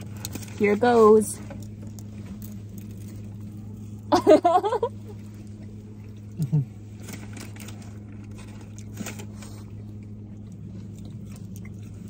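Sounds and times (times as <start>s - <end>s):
steady low hum: 0.0s - 12.0s
person chewing: 1.6s - 4.1s, 5.1s - 12.0s.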